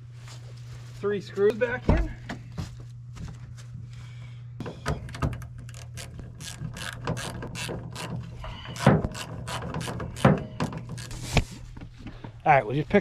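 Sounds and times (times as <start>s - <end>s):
ratchet wrench clicking: 5.7s - 11.2s.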